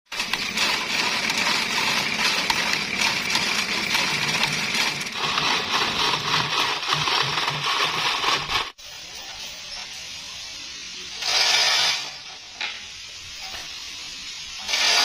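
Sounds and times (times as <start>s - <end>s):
rapid metallic rattling and clicking: 0.1s - 8.8s.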